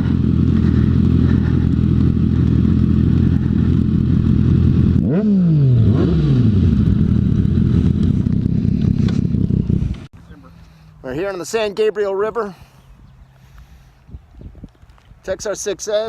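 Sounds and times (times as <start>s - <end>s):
motorcycle engine running: 0.0s - 10.4s
motorcycle throttle blips: 0.0s - 10.4s.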